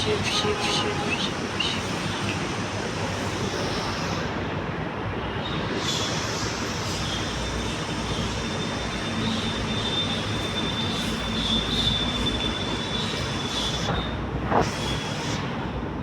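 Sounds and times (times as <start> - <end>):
high-pitched squeal: 0.0 - 4.2, 5.9 - 15.5
vehicle running noise: 0.0 - 16.0.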